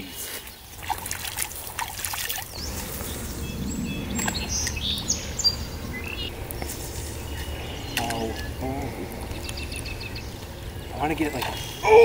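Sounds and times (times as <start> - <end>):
songbirds chirping: 0.0 - 12.0
steady low rumble: 2.4 - 11.8.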